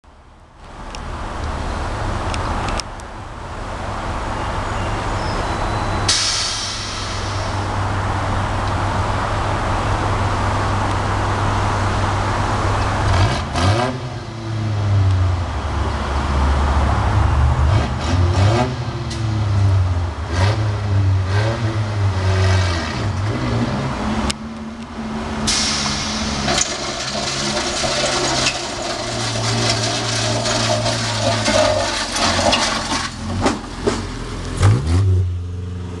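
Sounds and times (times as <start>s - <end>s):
truck engine revving: 11.4s - 15.0s, 16.2s - 24.4s, 25.2s - 35.7s.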